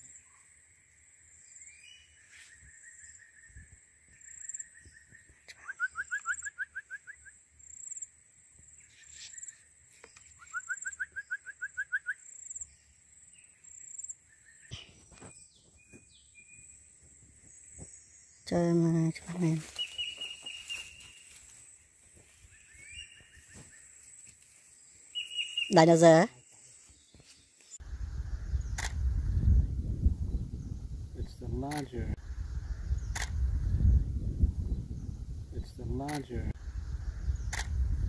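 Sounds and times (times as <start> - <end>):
bird calling: 4.4 - 7.3, 8.8 - 12.3, 19.6 - 21.4, 25.1 - 26.8.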